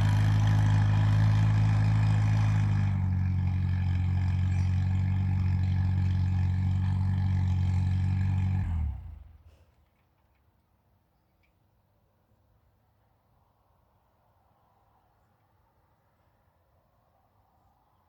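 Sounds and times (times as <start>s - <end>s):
tractor engine idling: 0.0s - 9.5s
engine shutting off: 0.0s - 9.6s.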